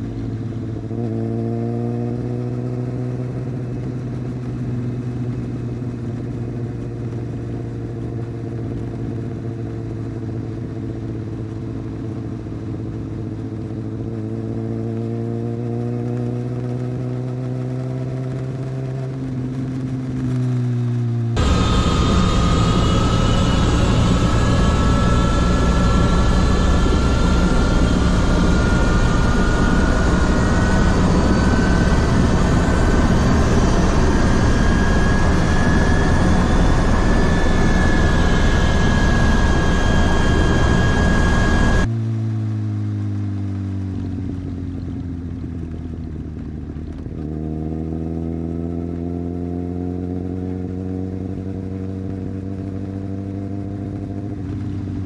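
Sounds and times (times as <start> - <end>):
motorcycle engine whine: 0.0 - 55.0
heavy wind rush: 21.4 - 41.9.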